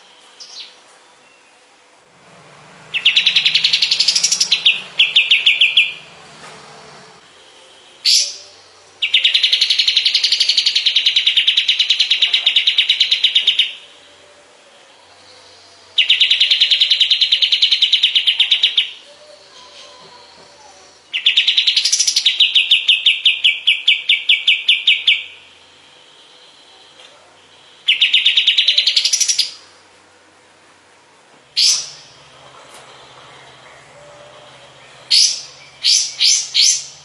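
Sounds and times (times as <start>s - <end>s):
songbird singing rapid trills: 2.8s - 6.2s, 7.4s - 14.0s, 14.9s - 29.7s, 31.6s - 32.4s, 33.0s - 37.0s.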